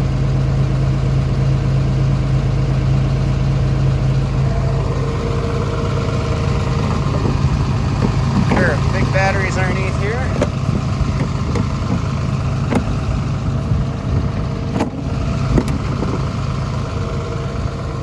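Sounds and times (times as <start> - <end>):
excavator diesel engine idling: 0.0 - 18.0
higher steady tone: 4.3 - 11.1.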